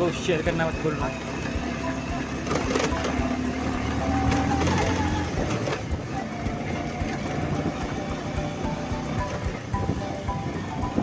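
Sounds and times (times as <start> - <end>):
motorcycle engine running: 0.0 - 11.0
wind noise on microphone: 4.3 - 11.0.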